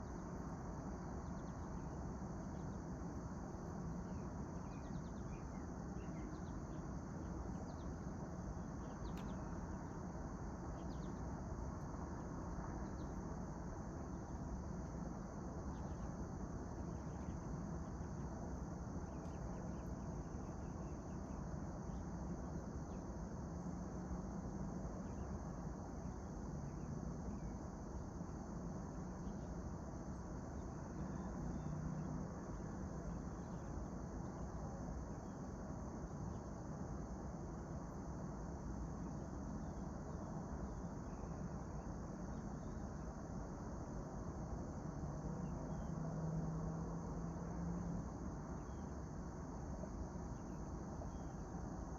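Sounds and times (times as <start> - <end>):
insect drone: 0.0 - 51.9
faint bird chirps: 1.0 - 3.2, 3.8 - 10.0, 10.6 - 11.4, 15.6 - 23.8, 25.0 - 27.8, 29.1 - 32.3, 40.9 - 43.0, 45.4 - 46.1, 48.5 - 49.1, 50.2 - 51.6.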